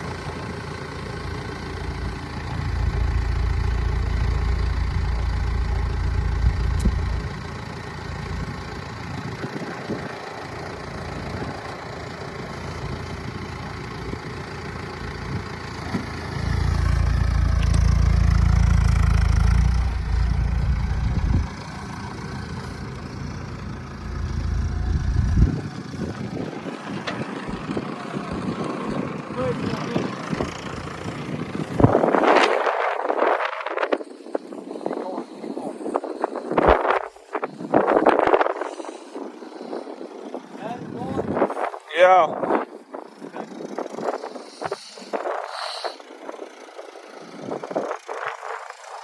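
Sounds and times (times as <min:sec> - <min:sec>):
engine running: 0:00.0 - 0:49.0
wind buffeting microphone: 0:16.8 - 0:22.8, 0:24.0 - 0:45.6, 0:46.2 - 0:49.0.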